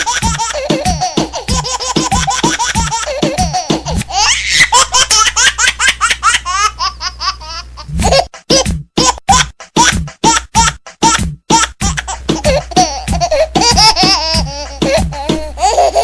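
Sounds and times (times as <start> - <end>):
background music: 0.0 - 4.1, 7.9 - 16.0.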